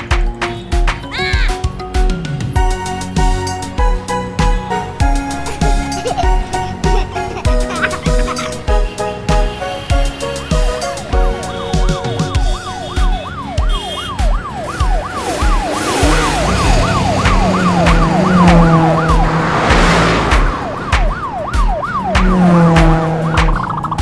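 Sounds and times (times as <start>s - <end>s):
background music with drum beat: 0.0s - 24.0s
cartoon police siren: 11.8s - 19.4s, 20.6s - 24.0s.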